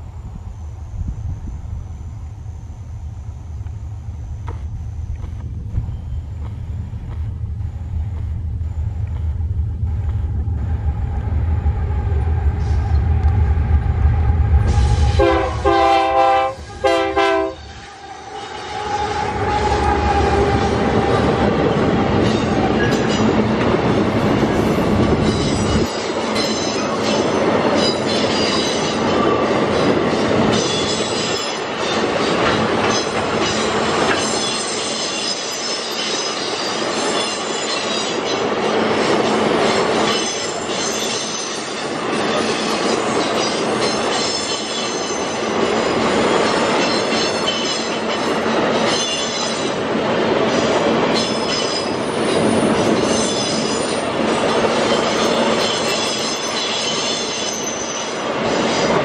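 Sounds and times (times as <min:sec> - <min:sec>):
diesel locomotive rumbling: 0:00.0 - 0:59.0
train horn blasts: 0:14.3 - 0:23.2
high wheel squeal: 0:17.4 - 0:23.4, 0:24.5 - 0:38.5, 0:39.1 - 0:49.8, 0:50.5 - 0:59.0
wheels clacking over rail joints: 0:19.2 - 0:59.0.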